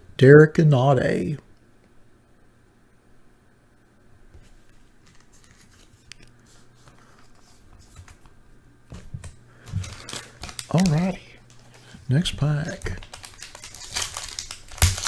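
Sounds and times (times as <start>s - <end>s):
cards sliding and clicking: 4.7s - 8.3s, 9.7s - 15.0s.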